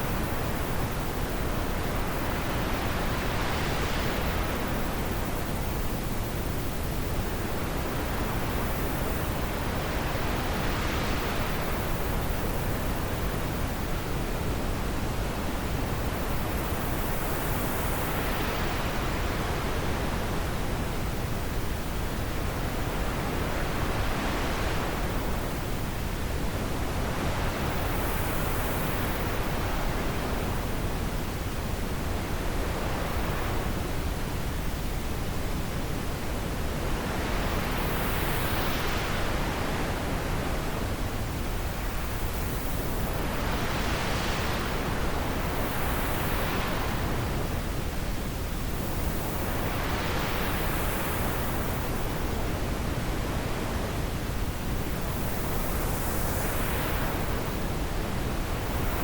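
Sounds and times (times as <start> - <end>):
rushing wind gusts: 0.0 - 59.0.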